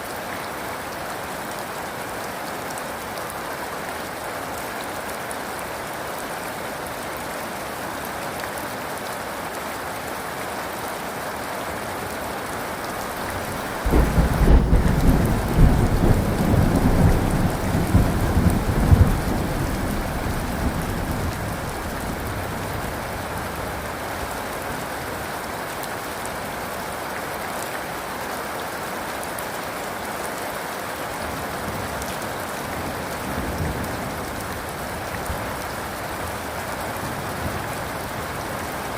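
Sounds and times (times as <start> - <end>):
heavy rain falling: 0.6 - 38.9
thunderclap: 13.0 - 22.3.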